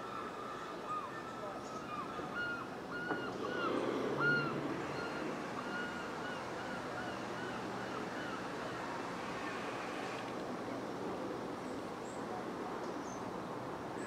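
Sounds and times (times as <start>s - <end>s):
steady background noise: 0.0s - 14.0s
bird calling: 0.1s - 8.9s.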